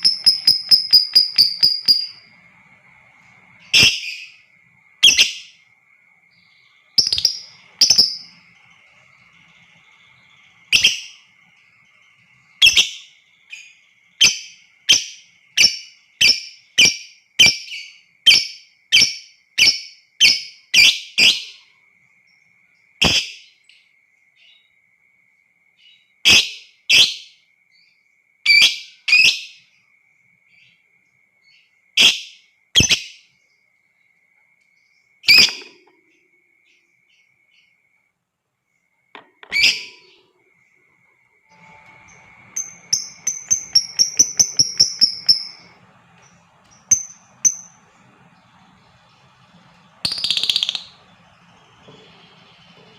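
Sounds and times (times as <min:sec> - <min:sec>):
bird chirping shrilly: 0:00.0 - 0:02.4, 0:03.6 - 0:04.4, 0:07.0 - 0:08.6, 0:10.0 - 0:11.3, 0:12.6 - 0:21.4, 0:35.3 - 0:35.8, 0:39.5 - 0:40.2, 0:41.5 - 0:52.9
faint steady high tone: 0:00.0 - 0:17.3, 0:33.3 - 0:52.9.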